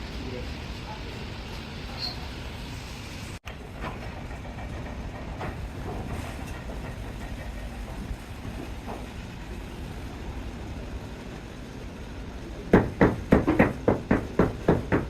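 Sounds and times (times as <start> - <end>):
heavy machinery rumbling: 3.3 - 15.0.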